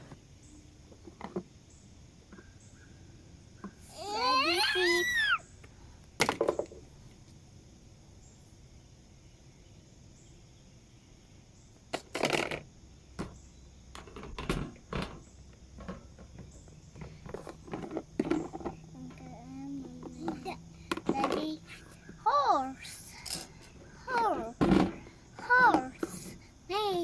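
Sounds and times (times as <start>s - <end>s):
plastic toys knocking on surface: 6.2s - 6.8s, 20.0s - 21.6s, 24.1s - 26.2s.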